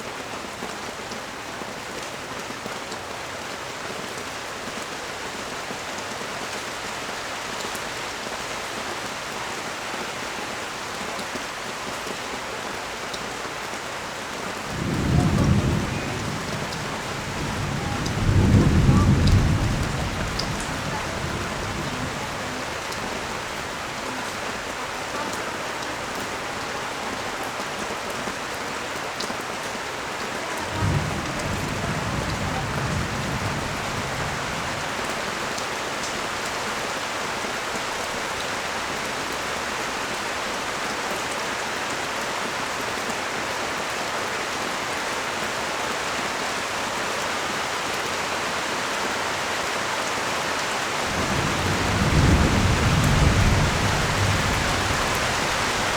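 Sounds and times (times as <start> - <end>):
rain falling on street: 0.0 - 55.9.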